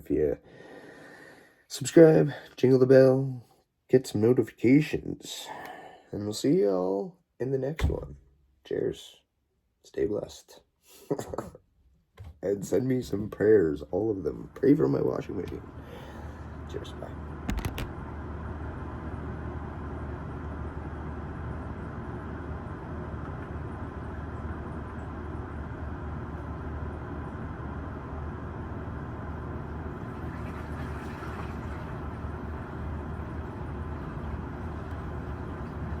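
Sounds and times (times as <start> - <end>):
low mechanical hum: 12.2 - 36.0.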